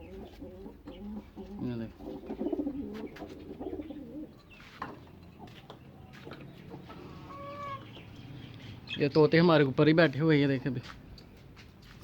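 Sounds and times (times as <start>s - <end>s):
pigeons cooing: 0.0s - 8.5s.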